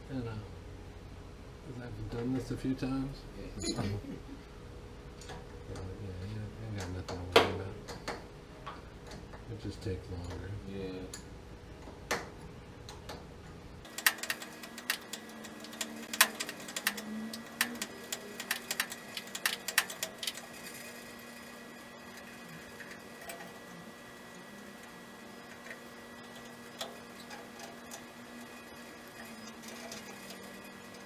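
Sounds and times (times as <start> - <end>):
irregular sharp clicks and taps: 13.8 - 23.7.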